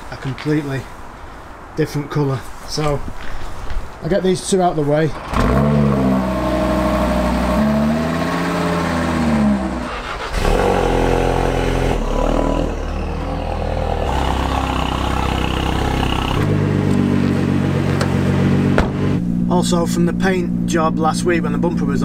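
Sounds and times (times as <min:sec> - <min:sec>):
car engines running: 0:04.4 - 0:22.0
car engine revving: 0:05.2 - 0:22.0.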